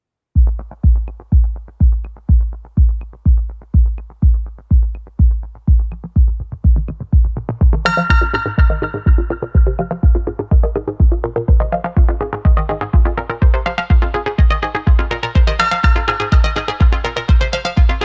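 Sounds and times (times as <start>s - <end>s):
electronic music with kick drum: 0.4s - 18.0s
bright synth chord: 7.9s - 10.4s.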